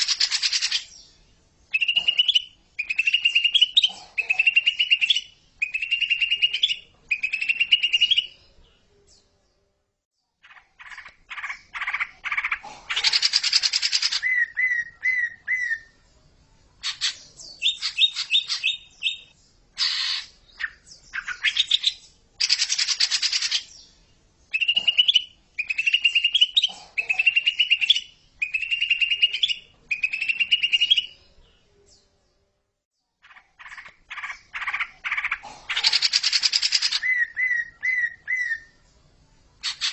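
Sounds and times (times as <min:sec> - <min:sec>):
bird singing whistled phrases: 0:14.1 - 0:15.9, 0:24.5 - 0:31.2, 0:36.6 - 0:38.8
harsh buzzy bird calls: 0:33.2 - 0:38.7, 0:39.6 - 0:39.9.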